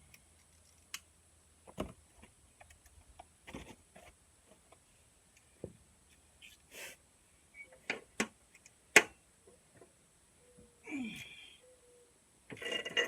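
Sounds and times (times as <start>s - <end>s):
tools and metal parts clicking: 12.5s - 13.0s.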